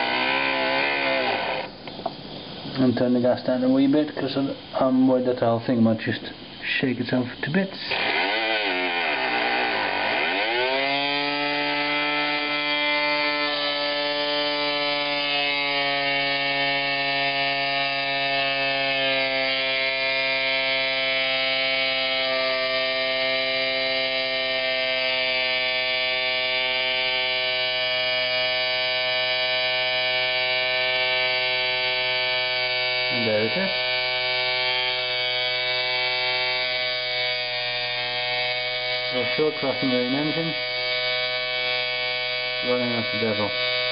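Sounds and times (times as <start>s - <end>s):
steam engine whirring: 0.0s - 2.6s, 7.4s - 43.9s.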